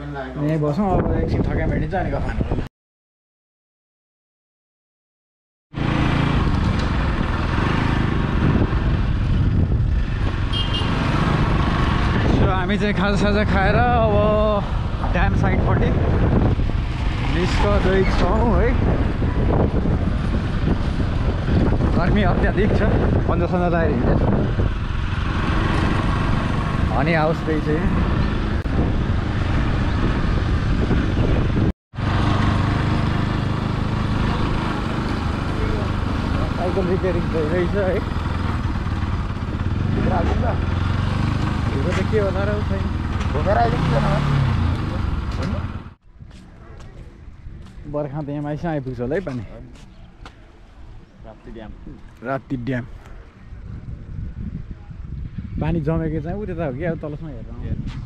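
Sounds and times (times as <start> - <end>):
wind and road noise: 0.0 - 2.7, 5.7 - 58.0
motorcycle engine running: 18.8 - 46.0.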